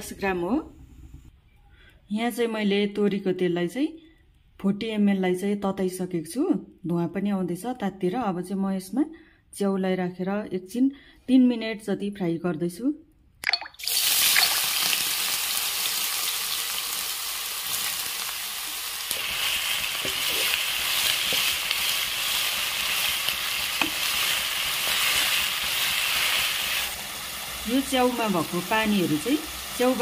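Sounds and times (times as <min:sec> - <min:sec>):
mushrooms sizzling in oil: 0:13.8 - 0:30.0.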